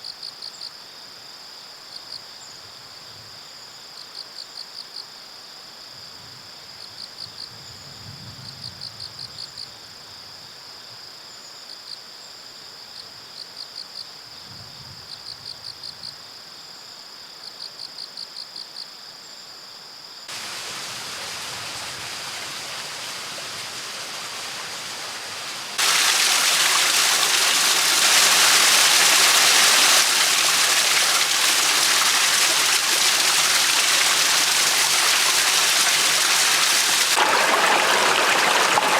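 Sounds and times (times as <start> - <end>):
insects trilling and chirping: 15.2 - 38.7
running water rushing: 20.3 - 38.9.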